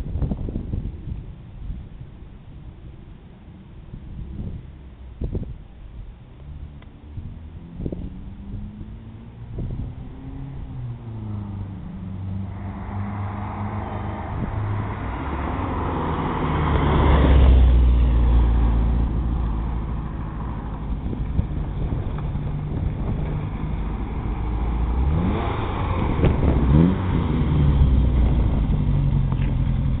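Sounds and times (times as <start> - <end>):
car engine revving: 6.4 - 30.0.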